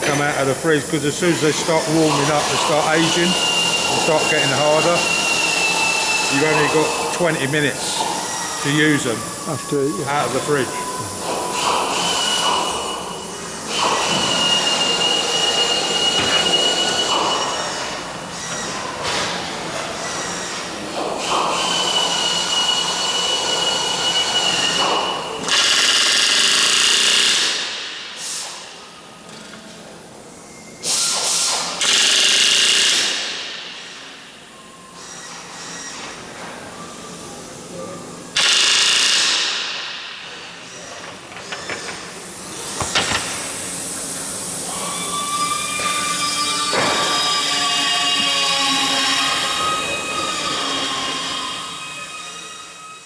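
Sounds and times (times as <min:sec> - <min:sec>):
power tools running: 0:00.0 - 0:19.2, 0:38.4 - 0:52.4.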